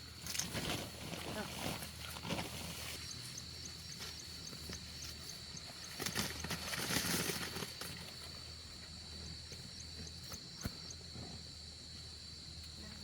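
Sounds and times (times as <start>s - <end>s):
high insect drone: 0.0s - 13.0s
rustling and handling noise: 0.1s - 8.4s.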